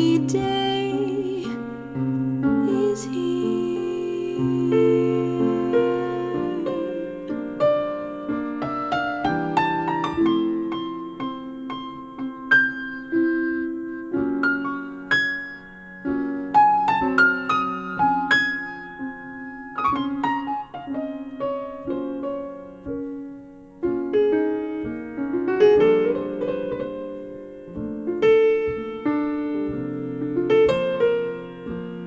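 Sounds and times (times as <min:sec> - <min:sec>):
piano playing over loudspeakers: 0:00.0 - 0:32.0.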